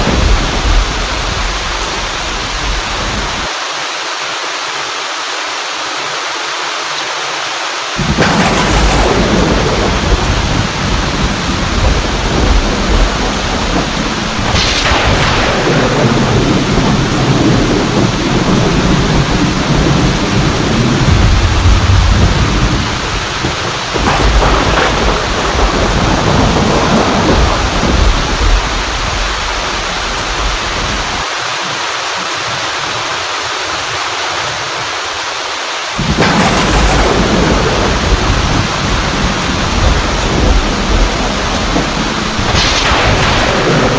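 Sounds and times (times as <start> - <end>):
thunder rumbling: 0.0 - 3.5, 8.0 - 31.3, 36.0 - 43.9
heavy rain: 0.0 - 43.9.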